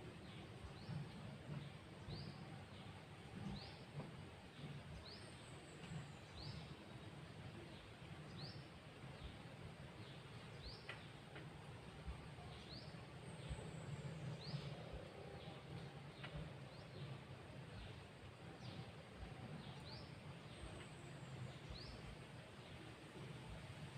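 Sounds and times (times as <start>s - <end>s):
low steady background noise: 0.0s - 23.9s.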